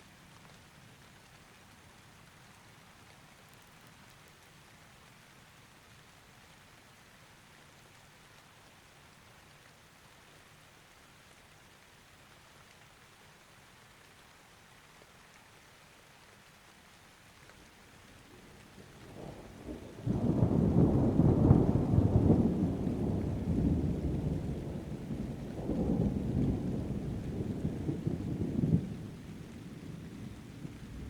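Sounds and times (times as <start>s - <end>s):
soft steady rain: 0.0s - 31.0s
rolling thunder: 18.9s - 31.0s.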